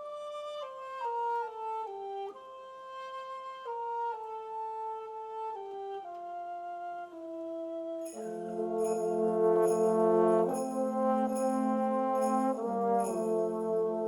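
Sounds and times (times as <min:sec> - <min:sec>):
soft woodwind line: 0:00.0 - 0:14.0
brass chords: 0:08.0 - 0:14.0.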